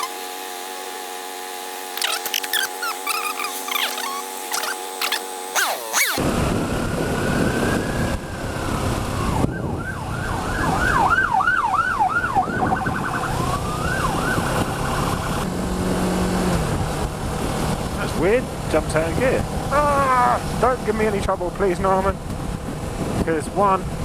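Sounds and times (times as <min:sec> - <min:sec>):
emergency vehicle siren: 0:06.2 - 0:15.5.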